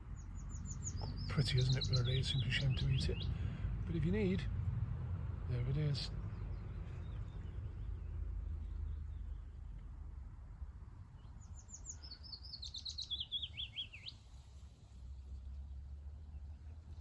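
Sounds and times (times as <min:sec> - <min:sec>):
songbird singing: 0:00.0 - 0:04.5, 0:05.5 - 0:10.2, 0:11.0 - 0:14.7
low steady rumble: 0:00.0 - 0:12.1.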